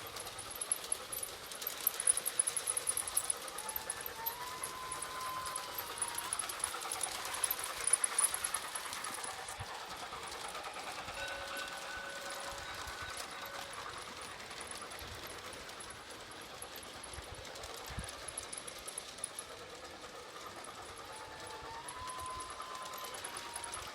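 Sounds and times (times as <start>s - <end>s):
model train wheels clattering: 0.0s - 23.9s.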